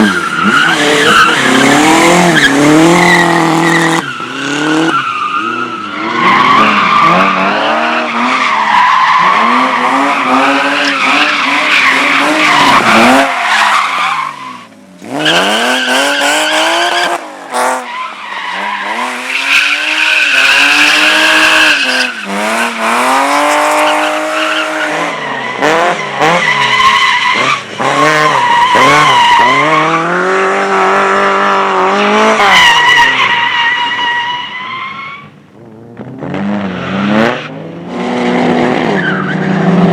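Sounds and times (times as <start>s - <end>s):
car engine revving hard: 9.2s - 14.3s, 18.6s - 26.8s.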